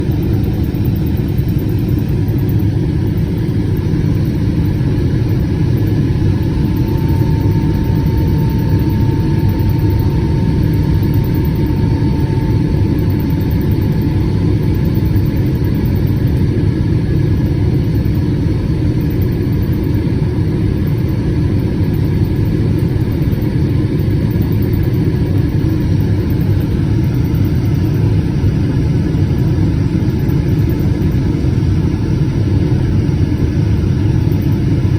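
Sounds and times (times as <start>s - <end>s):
airplane cabin rumble: 0.0s - 15.2s
faint high hum: 0.0s - 34.9s.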